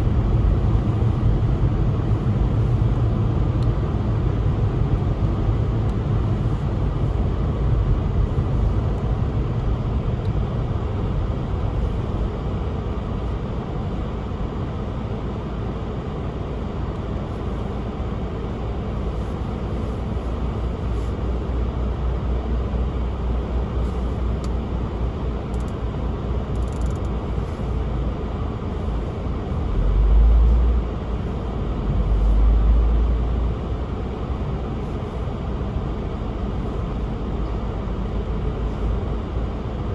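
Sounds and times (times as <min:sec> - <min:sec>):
low rumble: 0:00.0 - 0:12.6
tyres on snowy road: 0:00.0 - 0:39.9.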